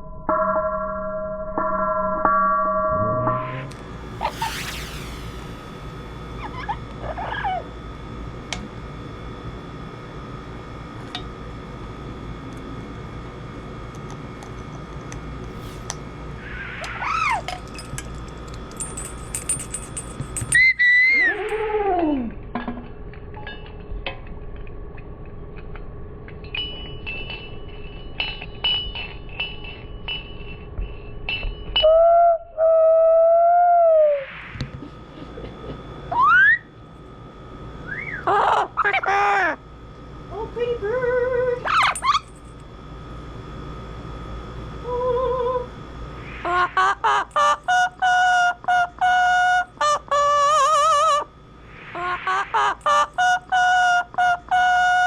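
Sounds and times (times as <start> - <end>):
faint hum: 0.0 - 55.0
parrot whistling a tune: 6.4 - 7.6, 36.1 - 36.7, 37.8 - 38.3
light ringing clinks: 17.5 - 20.9.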